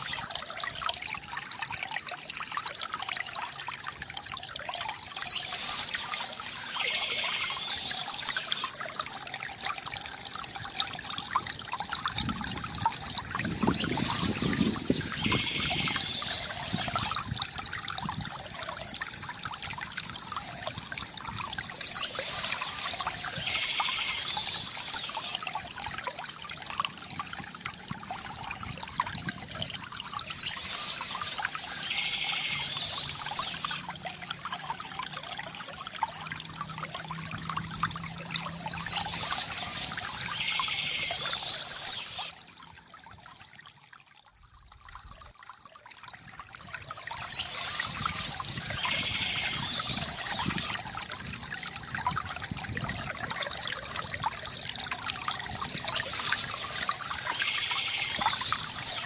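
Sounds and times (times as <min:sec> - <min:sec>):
stream babbling over stones: 0:00.0 - 0:59.0
birdsong: 0:05.1 - 0:08.7, 0:13.5 - 0:17.2, 0:21.8 - 0:25.4, 0:30.2 - 0:33.8, 0:38.7 - 0:42.3, 0:47.1 - 0:50.8, 0:55.8 - 0:59.0.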